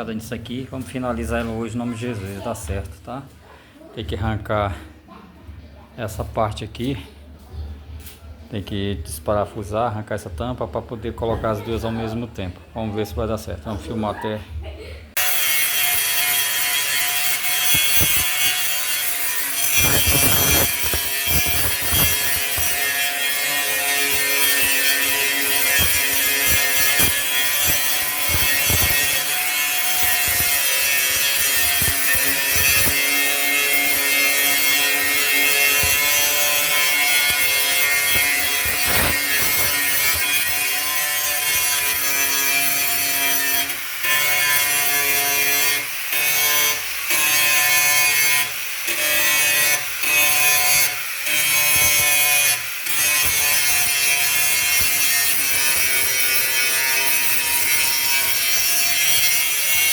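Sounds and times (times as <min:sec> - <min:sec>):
power sander grinding metal: 0:15.2 - 0:59.9.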